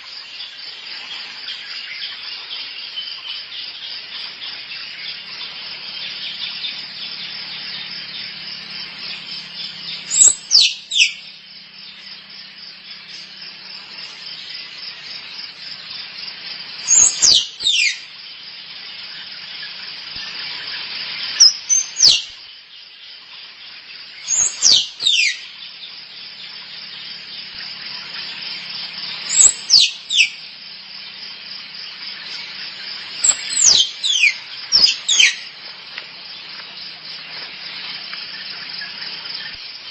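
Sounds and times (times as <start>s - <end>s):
pulsing insect chorus: 0.0s - 39.9s
squirrel chirping calls: 5.0s - 11.3s, 16.8s - 18.1s, 21.4s - 22.3s, 24.2s - 25.7s, 29.2s - 30.4s, 32.2s - 35.5s.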